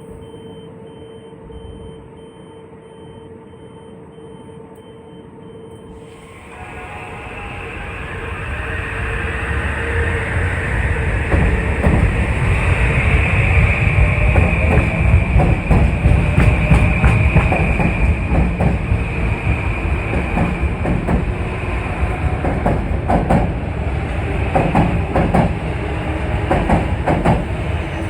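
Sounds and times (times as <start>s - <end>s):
train rumbling on track: 5.9s - 28.0s.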